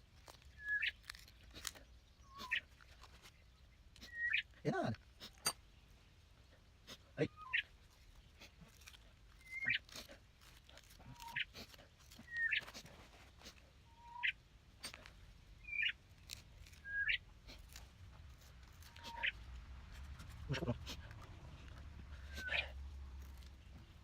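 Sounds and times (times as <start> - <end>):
bird chirping: 0.3 - 4.6, 7.3 - 8.4, 9.3 - 9.9, 11.0 - 12.8, 13.8 - 17.8, 18.4 - 19.5.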